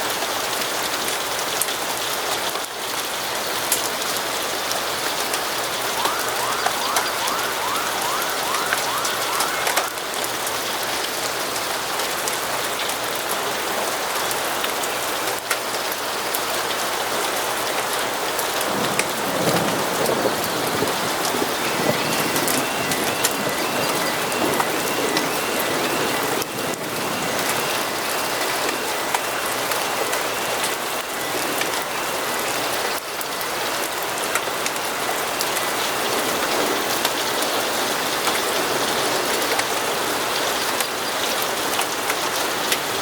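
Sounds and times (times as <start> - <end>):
steady rainfall: 0.0 - 43.0
evenly spaced chirps: 6.0 - 10.2.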